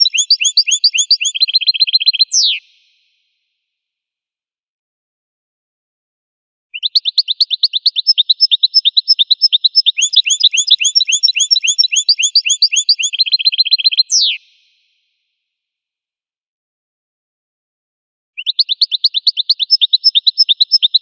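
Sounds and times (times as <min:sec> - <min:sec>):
goldfinch singing: 0:00.0 - 0:02.6, 0:06.8 - 0:14.4, 0:18.4 - 0:21.0.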